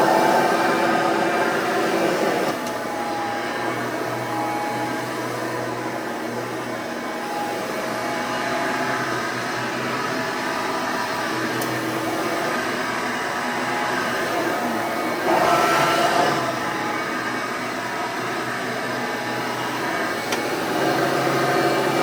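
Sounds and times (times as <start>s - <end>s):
vacuum cleaner whirring hum: 0.0s - 22.0s.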